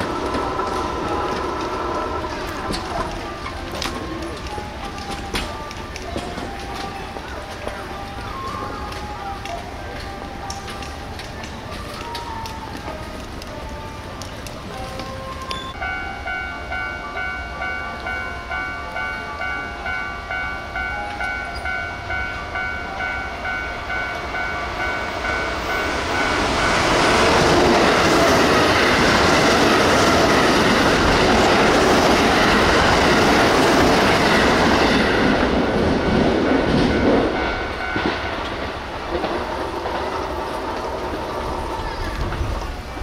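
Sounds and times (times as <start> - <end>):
electric train passing: 0.0 - 43.0
level crossing bell ringing: 14.7 - 29.8, 31.2 - 38.5.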